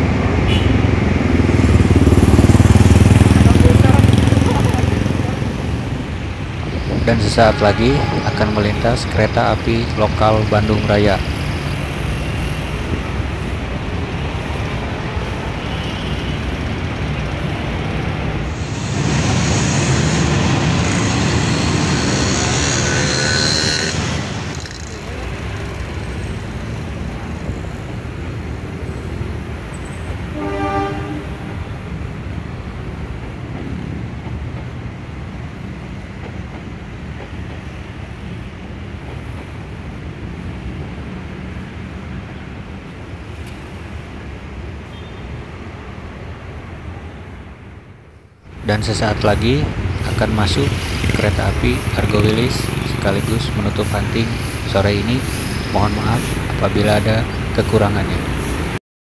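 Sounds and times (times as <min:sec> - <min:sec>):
road traffic: 0:00.0 - 0:58.8
train rumbling on viaduct: 0:00.0 - 0:58.8
train horn note: 0:07.2 - 0:09.0, 0:30.3 - 0:31.6.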